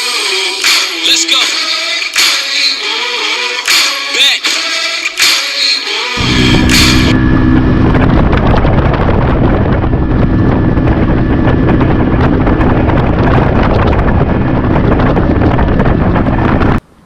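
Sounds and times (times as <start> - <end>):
outboard motor drone: 6.0 - 17.0
wind buffeting microphone: 6.2 - 16.8.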